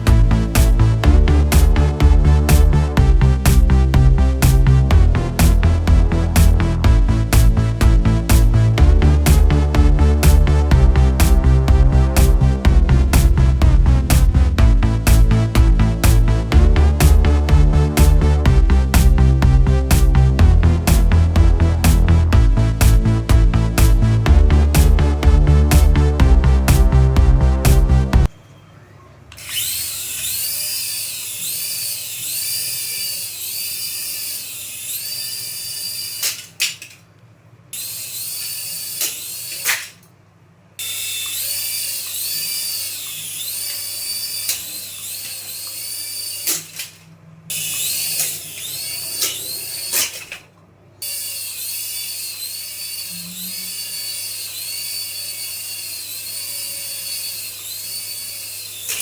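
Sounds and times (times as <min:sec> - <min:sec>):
small electric motor whining: 0:29.4 - 0:36.5, 0:37.8 - 0:39.8, 0:40.8 - 0:50.3, 0:51.0 - 0:59.0.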